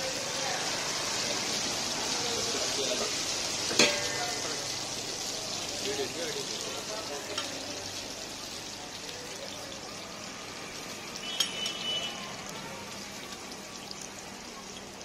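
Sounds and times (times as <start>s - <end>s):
flatbread sizzling on griddle: 0.0s - 15.0s
metal spatula clinking on griddle: 3.7s - 4.2s, 7.3s - 7.6s, 11.3s - 11.8s.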